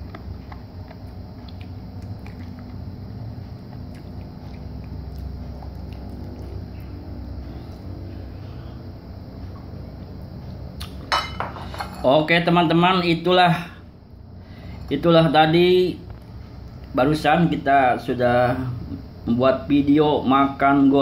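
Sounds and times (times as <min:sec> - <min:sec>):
person chewing crunchy beans: 0:00.0 - 0:08.4, 0:09.0 - 0:11.1
steady low hum: 0:00.0 - 0:21.0.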